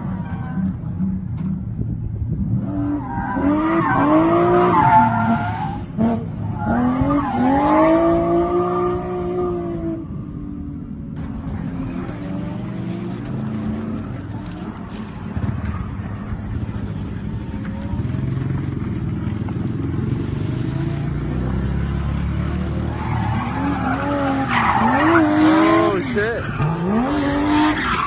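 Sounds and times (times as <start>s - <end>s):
car engine revving: 0.0s - 28.0s
tyre squeal: 22.8s - 28.0s.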